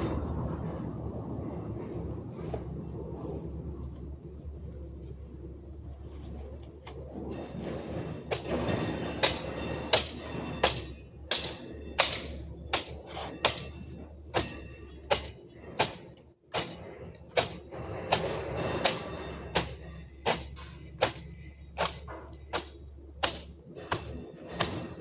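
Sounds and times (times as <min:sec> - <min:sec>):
metal garden tool striking: 0:08.3 - 0:25.0.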